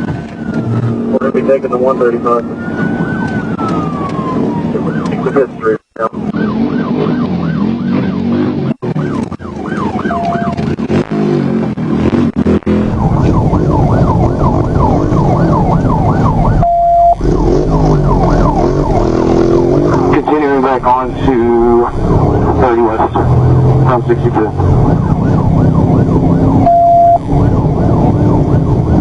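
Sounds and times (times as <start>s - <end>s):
police siren yelping: 0.0s - 11.0s, 12.7s - 29.0s
engine and road noise: 0.0s - 29.0s
short steady beeps: 16.6s - 17.2s, 26.6s - 27.2s.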